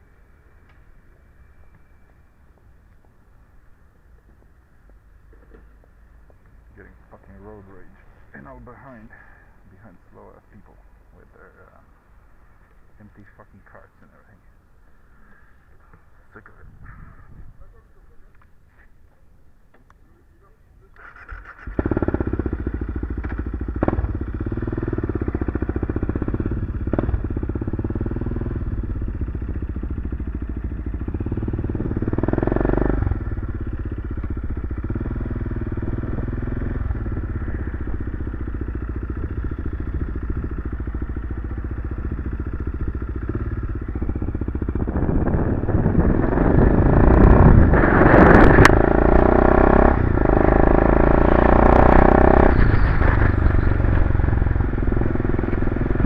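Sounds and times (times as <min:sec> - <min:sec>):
motorcycle engine running: 0:21.0 - 0:56.0.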